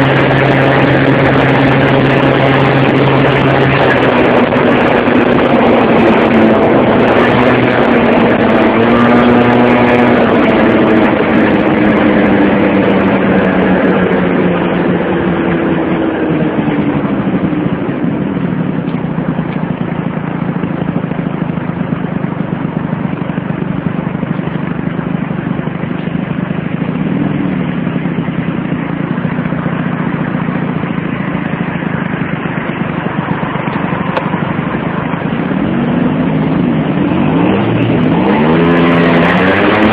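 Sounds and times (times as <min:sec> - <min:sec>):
motorcycle engine running: 0:00.0 - 0:39.9
road noise rushing: 0:00.0 - 0:39.9.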